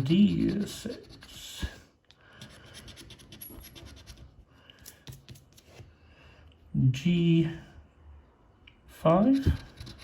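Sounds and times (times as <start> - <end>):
scratch card being scratched: 0.0 - 1.6, 2.4 - 4.4, 9.3 - 10.0.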